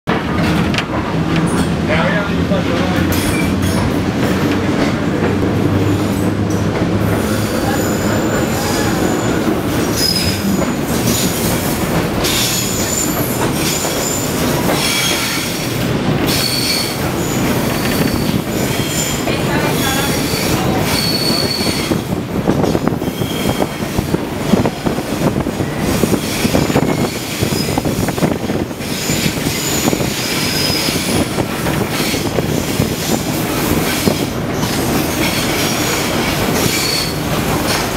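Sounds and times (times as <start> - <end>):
railcar wheels rumbling on rails: 0.1 - 37.9
high-pitched wheel squeals: 7.4 - 10.6, 16.3 - 19.2, 19.8 - 22.0, 36.6 - 37.2.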